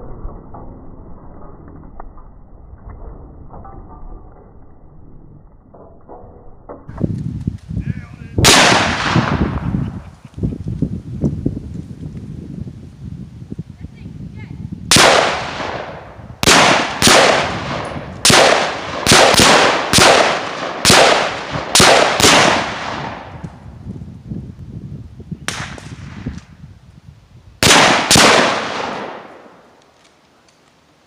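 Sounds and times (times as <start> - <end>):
gunshots with echo: 8.4 - 9.7, 14.9 - 23.4, 27.6 - 29.6.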